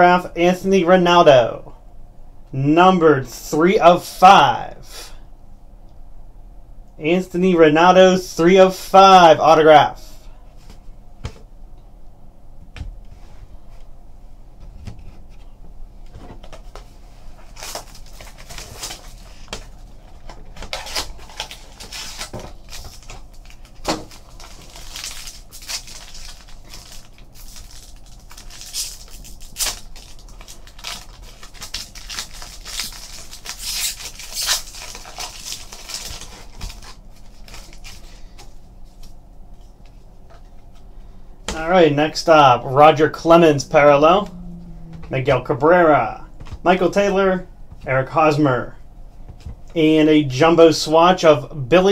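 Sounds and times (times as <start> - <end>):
wrapper crinkling and tearing: 17.4 - 38.4.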